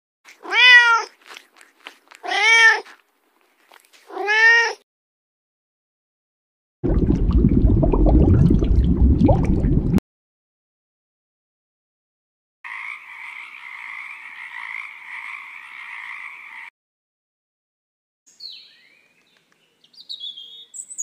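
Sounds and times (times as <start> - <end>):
kittens meowing: 0.4 - 1.2, 2.2 - 2.9.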